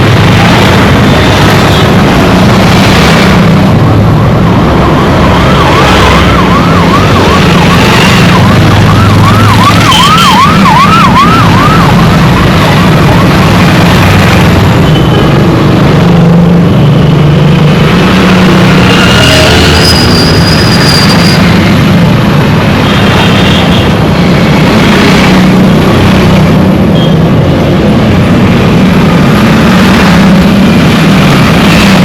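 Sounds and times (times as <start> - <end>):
road traffic engines: 0.0 - 32.0
electronic siren warbling: 4.2 - 14.0.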